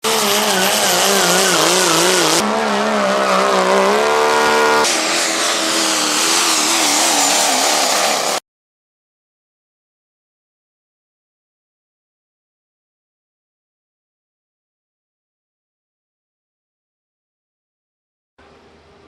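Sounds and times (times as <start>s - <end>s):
pickup truck engine at full throttle: 0.0s - 8.4s.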